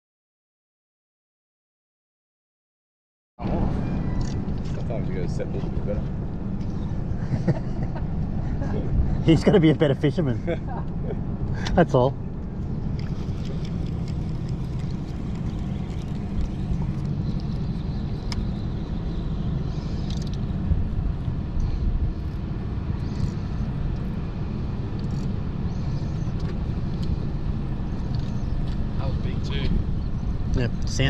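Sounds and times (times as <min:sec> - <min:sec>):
outboard motor idling: 0:08.6 - 0:20.3.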